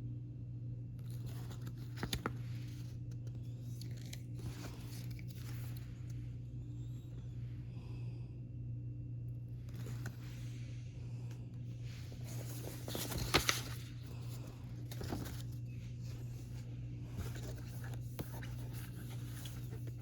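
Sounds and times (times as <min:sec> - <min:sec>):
steady low hum: 0:00.0 - 0:20.0
paper and packaging rustling: 0:01.0 - 0:06.1, 0:11.9 - 0:20.0.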